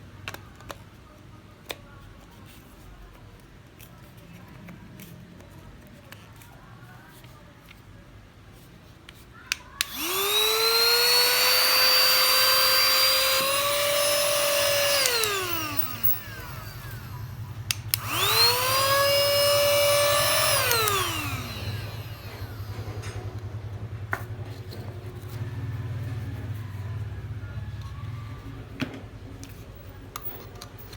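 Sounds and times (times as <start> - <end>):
vacuum cleaner motor whining: 9.8 - 28.8.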